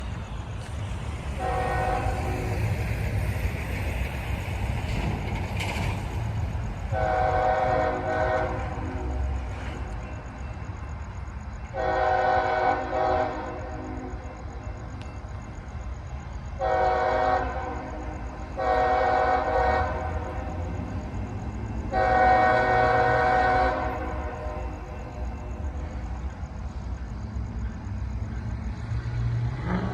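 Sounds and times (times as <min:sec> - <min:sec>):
locomotive rumble: 0:00.0 - 0:29.9
locomotive air horn blasts: 0:01.4 - 0:02.6, 0:06.9 - 0:09.4, 0:11.8 - 0:14.3, 0:16.6 - 0:20.4, 0:21.9 - 0:24.8.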